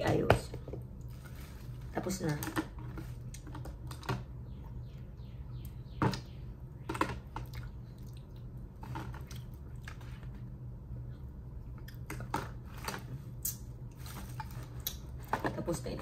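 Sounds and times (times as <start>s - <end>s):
steady low hum: 0.0s - 16.0s
chewing and crunching: 6.9s - 15.5s.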